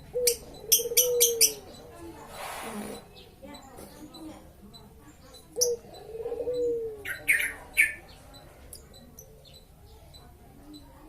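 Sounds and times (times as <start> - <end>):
lovebirds calling: 0.0 - 10.8
shrill bird chirps: 7.0 - 8.2.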